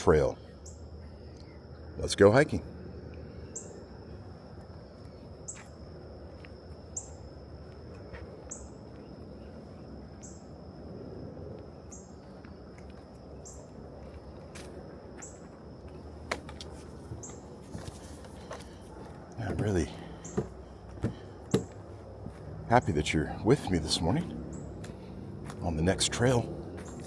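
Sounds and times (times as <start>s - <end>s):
bird chirping: 0.0s - 2.0s, 2.8s - 5.8s, 6.9s - 7.3s, 8.4s - 10.5s, 11.8s - 12.7s, 13.3s - 13.7s, 17.1s - 17.6s, 18.4s - 21.9s, 22.8s - 25.8s
distant traffic rumble: 0.0s - 27.0s.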